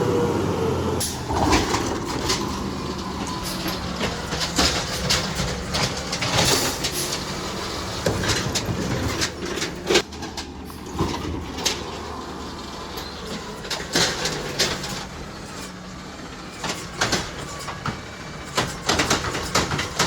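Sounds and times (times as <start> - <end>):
garbage truck engine running: 0.0 - 20.0
metal clanks and knocks: 1.0 - 12.2, 12.9 - 20.0.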